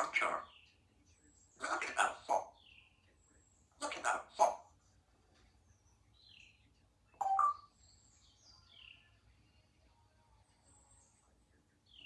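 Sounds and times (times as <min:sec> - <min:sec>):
faint high chirps and whistles: 0:05.7 - 0:09.2.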